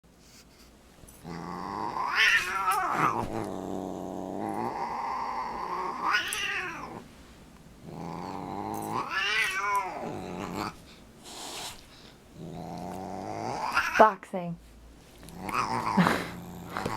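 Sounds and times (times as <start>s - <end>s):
cat growling and yowling: 1.2s - 7.0s, 7.9s - 10.8s, 12.4s - 14.0s, 15.3s - 16.9s.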